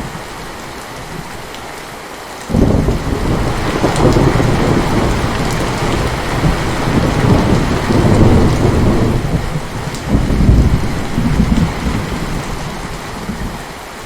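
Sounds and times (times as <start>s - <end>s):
heavy rain falling: 0.0s - 14.0s
thunder rumbling: 2.5s - 13.6s.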